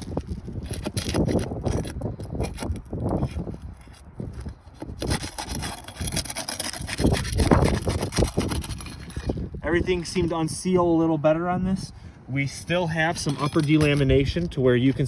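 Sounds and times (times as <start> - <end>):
flat bar scraping shingles: 0.0 - 9.4, 12.4 - 15.0.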